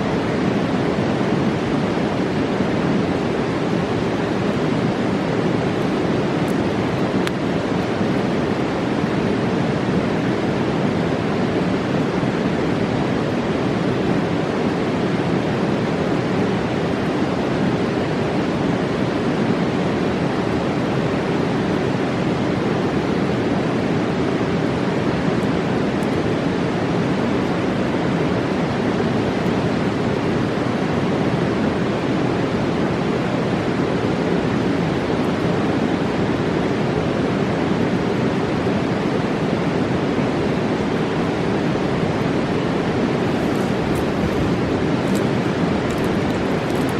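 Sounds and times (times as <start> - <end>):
river whitewater roaring: 0.0 - 46.9.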